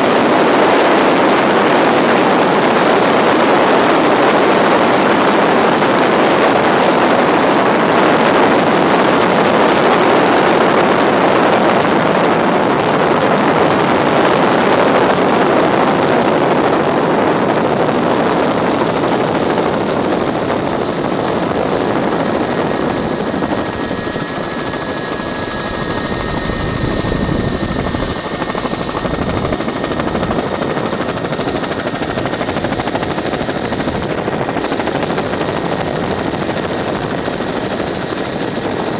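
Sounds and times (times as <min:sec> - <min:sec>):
helicopter rotor and turbine rush: 0:00.0 - 0:38.9
thin turbine whine: 0:00.0 - 0:38.9.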